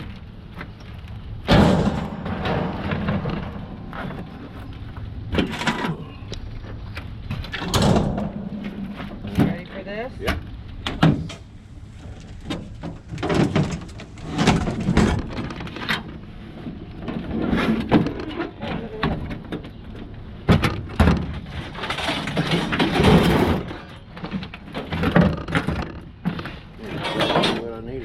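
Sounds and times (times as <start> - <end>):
metal knocks and clanks: 1.4 - 6.1, 7.3 - 11.4, 20.5 - 27.8.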